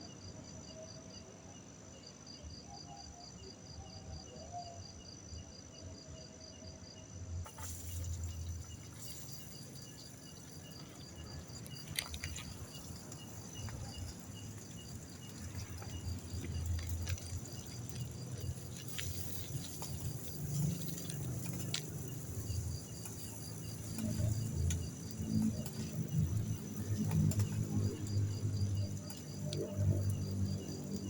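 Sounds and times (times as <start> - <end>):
crickets chirping: 0.0 - 31.0
low uneven rumble: 7.5 - 31.0.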